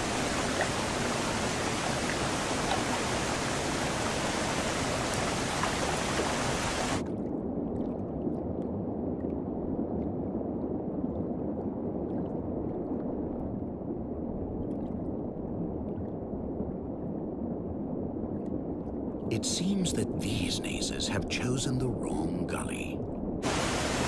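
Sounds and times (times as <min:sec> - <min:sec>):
stream water rushing: 0:00.0 - 0:07.0, 0:23.4 - 0:24.0.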